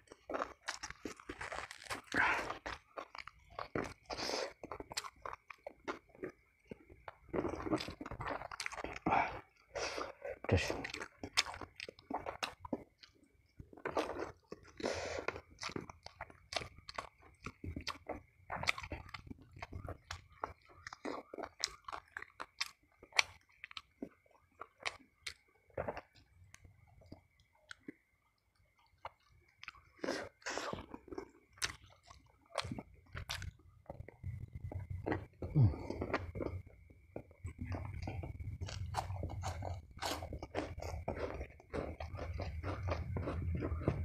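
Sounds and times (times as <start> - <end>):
chewing and crunching crispy food: 0.0 - 44.0.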